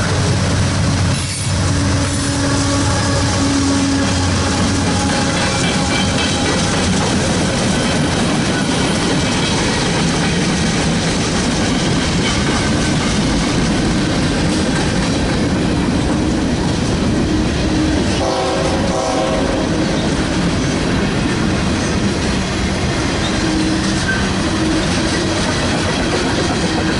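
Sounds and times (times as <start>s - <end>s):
train wheels clattering over rails: 0.0s - 26.9s
train horn: 1.5s - 6.8s, 17.7s - 20.1s.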